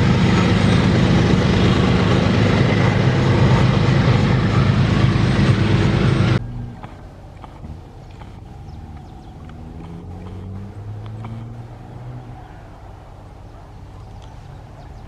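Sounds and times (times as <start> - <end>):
train rolling noise: 0.0 - 7.9
diesel locomotive engine drone: 0.0 - 15.0.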